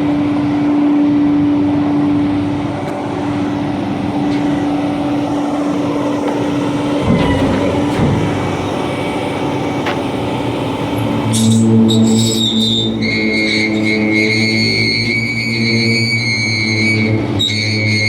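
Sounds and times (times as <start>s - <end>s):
garbage truck engine hum: 0.0s - 18.0s
knocks: 6.2s - 10.4s.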